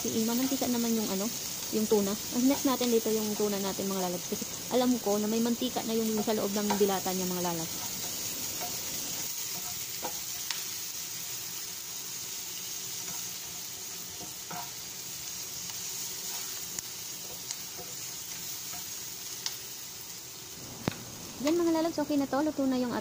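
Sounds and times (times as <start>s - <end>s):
onions sizzling in oil: 0.0s - 23.0s
spatula tapping and scraping pan: 5.9s - 10.8s, 12.9s - 15.0s, 15.6s - 19.6s.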